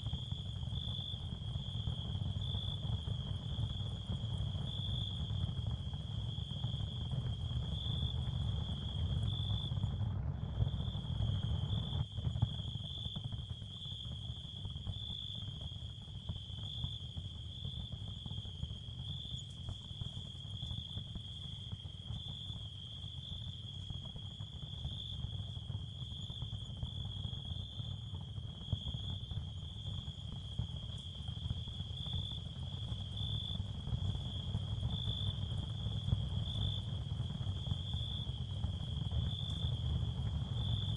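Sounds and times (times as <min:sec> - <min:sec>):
crickets chirring: 0:10.7 - 0:40.9.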